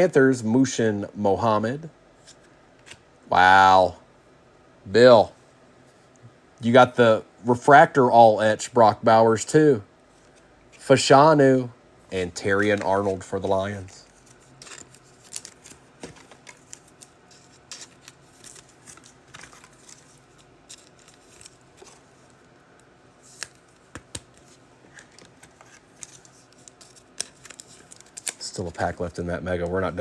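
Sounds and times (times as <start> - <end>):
cards clicking and rustling: 12.5 - 29.9
packaging rustling: 12.6 - 22.5, 23.2 - 28.6.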